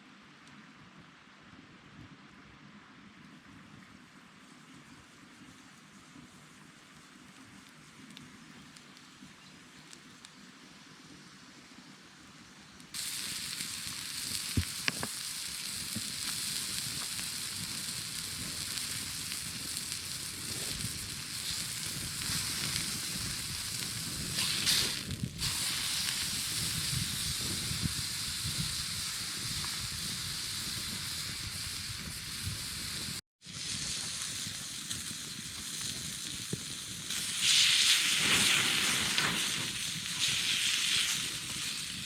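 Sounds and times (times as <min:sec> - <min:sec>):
small crackles: 0:04.4 - 0:42.0
food sizzling in a pan: 0:13.0 - 0:42.0.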